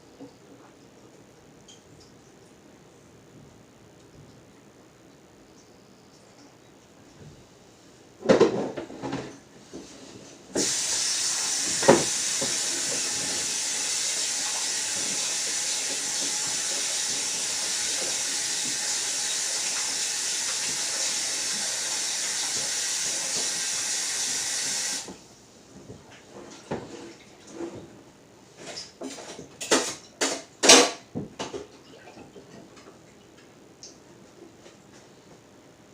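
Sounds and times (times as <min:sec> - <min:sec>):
tap water running: 0:10.5 - 0:25.2.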